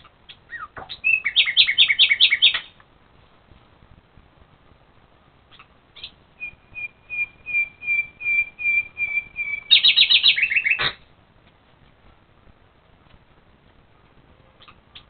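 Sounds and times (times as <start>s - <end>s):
songbird singing: 0.0s - 2.9s, 5.4s - 11.1s, 13.9s - 15.0s.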